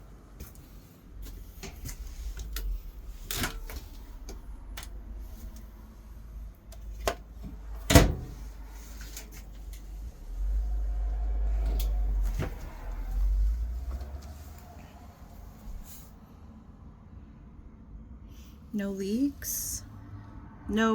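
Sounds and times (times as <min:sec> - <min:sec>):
low rumble: 0:00.0 - 0:08.9, 0:09.6 - 0:18.7
cabinet doors and latches clicking: 0:07.9 - 0:08.3.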